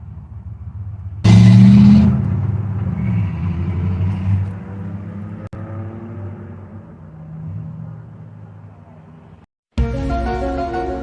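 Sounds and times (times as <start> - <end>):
car engine accelerating: 1.2 - 9.4.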